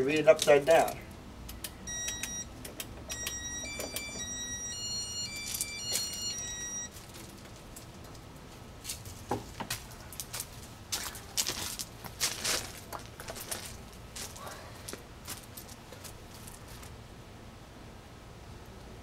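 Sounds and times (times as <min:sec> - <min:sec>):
electronic beep tune: 0:01.9 - 0:02.5, 0:03.1 - 0:06.9.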